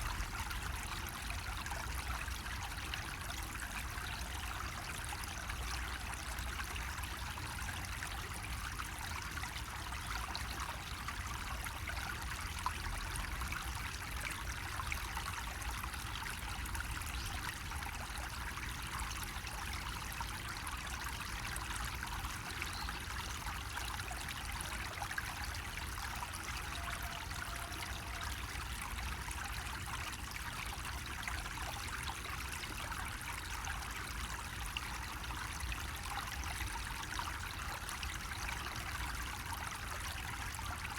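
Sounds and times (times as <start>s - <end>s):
water trickling from a faucet: 0.0s - 40.9s.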